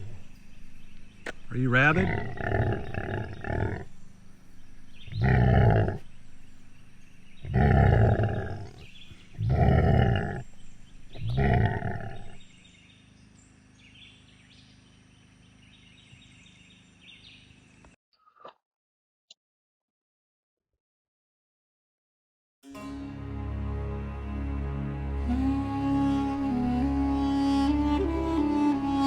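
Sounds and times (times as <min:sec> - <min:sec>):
growl sound effects: 0:01.8 - 0:03.9, 0:05.1 - 0:06.0, 0:07.4 - 0:10.4, 0:11.2 - 0:12.4.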